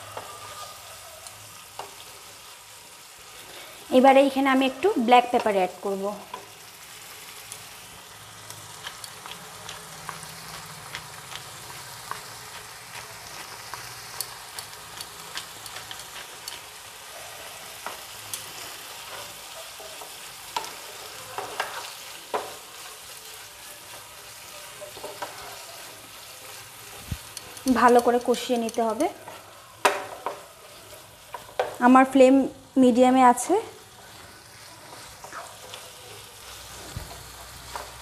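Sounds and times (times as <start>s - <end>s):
chicken sizzling in oil: 0.0s - 38.0s
sharp crackles and clicks: 5.2s - 32.2s.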